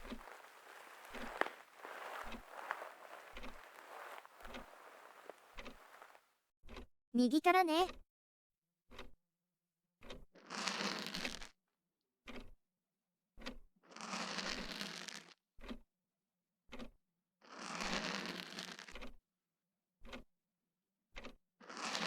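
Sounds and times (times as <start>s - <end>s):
ear pick scraping: 0.0s - 6.2s.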